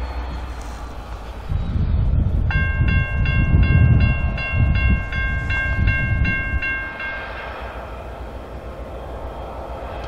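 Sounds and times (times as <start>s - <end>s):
diesel locomotives rumbling: 0.0s - 10.0s
bell ringing rapidly: 2.5s - 7.4s.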